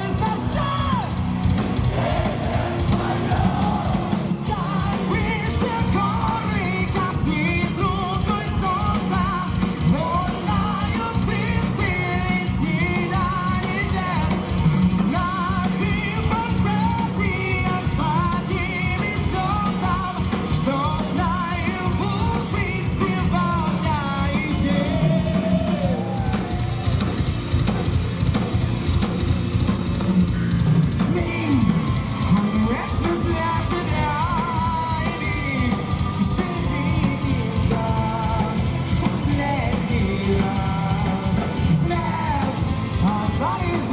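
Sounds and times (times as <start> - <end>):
distorted electric guitars: 0.0 - 43.9
drum kit pounding: 0.0 - 43.9.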